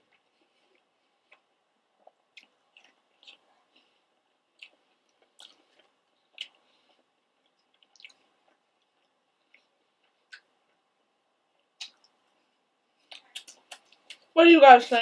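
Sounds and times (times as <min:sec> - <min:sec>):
wet chewing mouth sounds: 0:00.0 - 0:10.8, 0:13.0 - 0:14.3.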